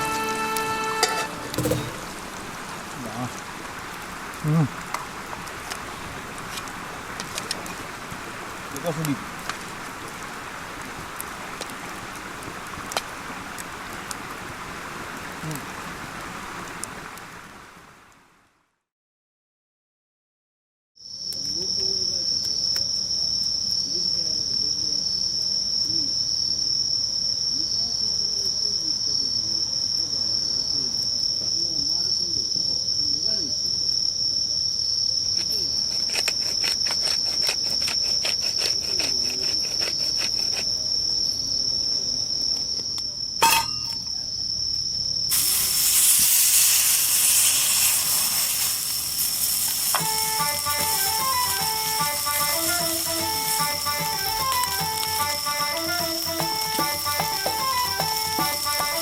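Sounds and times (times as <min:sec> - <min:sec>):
guitar music: 0:00.0 - 0:02.2, 0:50.0 - 0:59.0
loud sizzling hiss: 0:00.0 - 0:18.2, 0:43.4 - 0:59.0
sharp knock: 0:01.5 - 0:02.3
insect trilling: 0:21.0 - 0:59.0.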